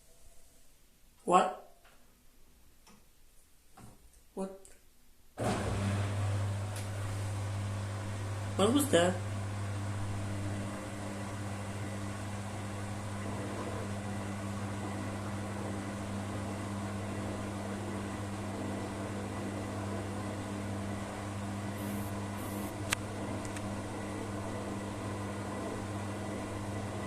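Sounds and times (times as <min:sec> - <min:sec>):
washing machine motor hum: 0:05.4 - 0:27.0.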